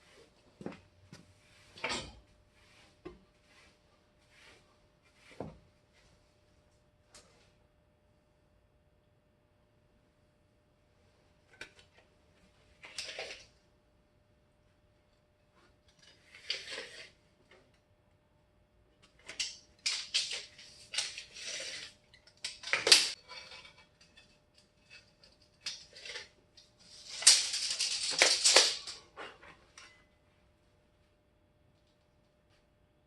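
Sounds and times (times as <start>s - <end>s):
faint steady hum: 0.0s - 33.0s
metal tools rattling and clinking: 19.3s - 26.3s, 26.9s - 29.0s.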